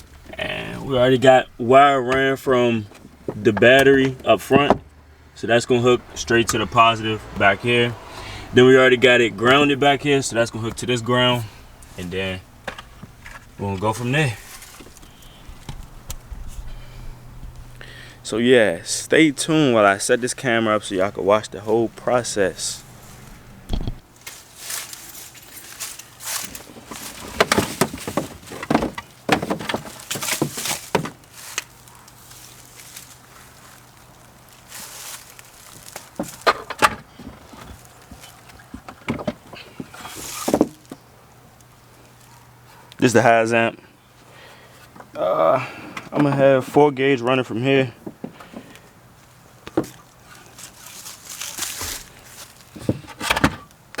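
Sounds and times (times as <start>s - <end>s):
faint low hum: 0.0s - 28.4s
rustling: 7.8s - 18.2s, 21.6s - 41.1s, 48.4s - 53.7s.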